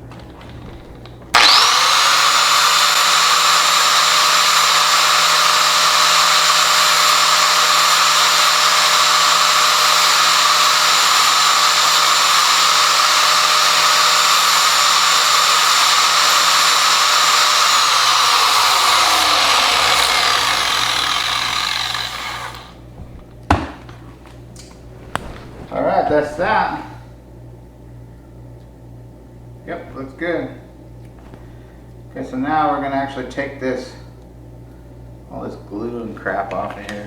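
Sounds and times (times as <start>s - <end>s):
power sander grinding plastic: 1.0s - 22.8s.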